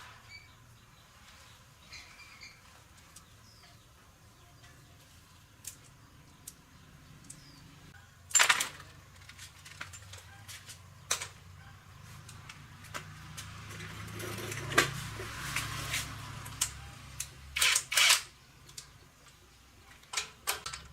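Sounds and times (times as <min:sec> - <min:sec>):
metal tools clicking and knocking: 0:16.6 - 0:20.9.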